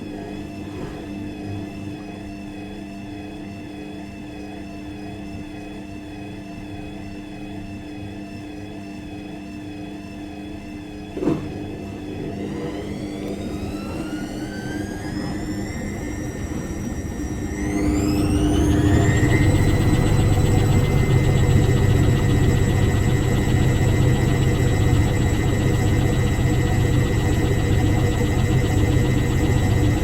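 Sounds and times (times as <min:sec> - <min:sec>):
washing machine motor hum: 0:09.9 - 0:30.0.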